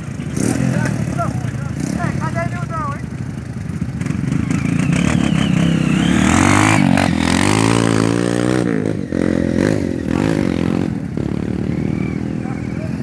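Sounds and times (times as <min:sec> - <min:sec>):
motocross bike engine revving: 0:00.0 - 0:13.0.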